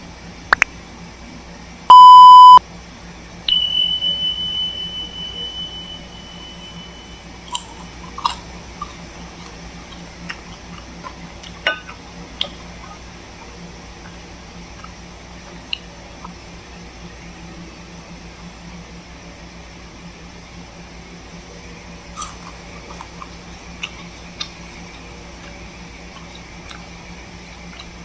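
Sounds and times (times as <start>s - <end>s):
high ringing tone: 1.9s - 2.6s, 3.5s - 7.5s
loud electronic beep: 1.9s - 2.6s, 3.5s - 7.2s.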